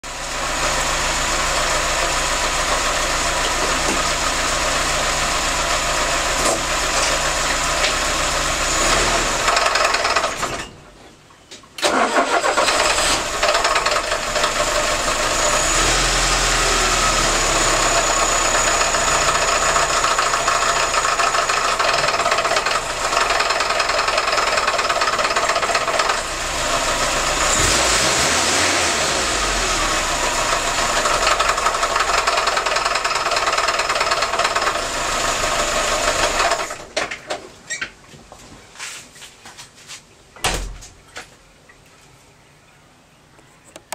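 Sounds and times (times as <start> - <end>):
car engine running with a knock: 2.7 - 4.4, 6.3 - 8.2.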